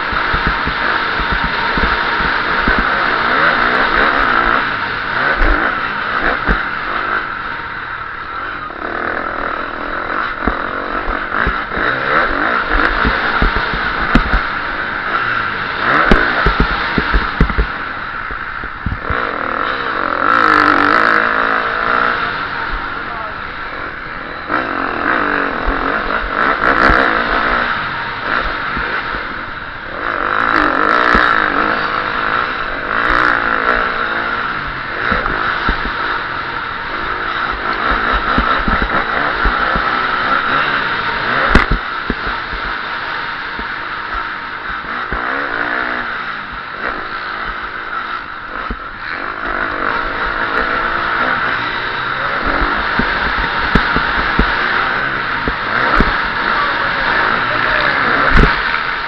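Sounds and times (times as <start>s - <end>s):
knocks and clatter: 0.0s - 4.6s, 10.3s - 14.6s, 15.8s - 19.2s, 41.3s - 42.8s, 52.5s - 54.6s
motocross engine revving: 0.0s - 59.0s.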